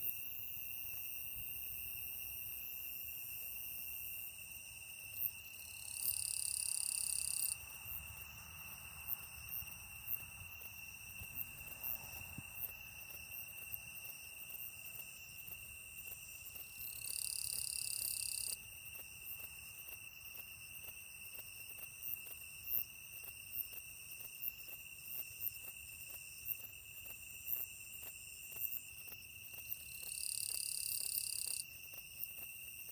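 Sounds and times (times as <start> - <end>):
insect high trill: 16.6 - 18.6.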